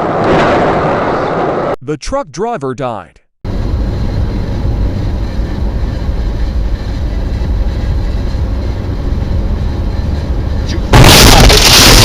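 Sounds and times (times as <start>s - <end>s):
road and wind noise: 3.5s - 11.0s
moving vehicle rumble: 3.5s - 12.0s.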